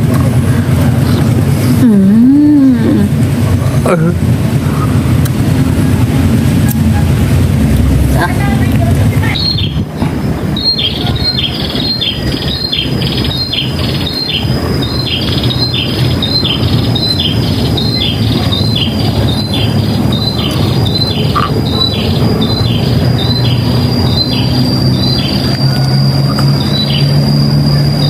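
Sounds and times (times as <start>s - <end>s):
low rumble: 0.0s - 28.0s
steady high whine: 0.0s - 28.0s
bird calling: 9.2s - 28.0s.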